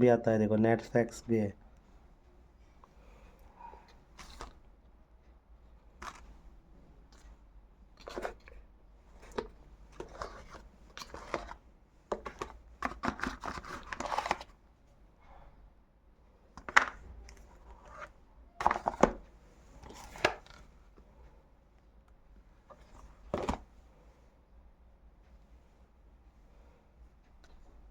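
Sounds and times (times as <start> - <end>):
packaging rustling and crinkling: 4.2 - 4.6, 8.0 - 8.5, 9.2 - 14.5, 16.6 - 19.2.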